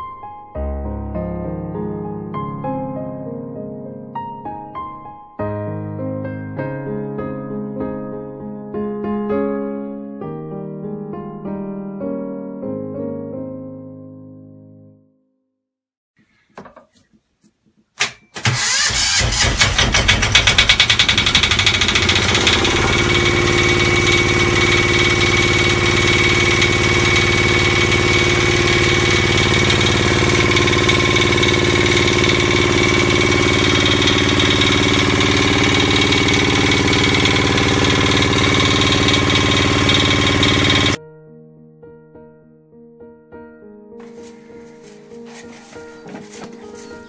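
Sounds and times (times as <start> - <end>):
boat engine starting and running: 18.4 - 41.0.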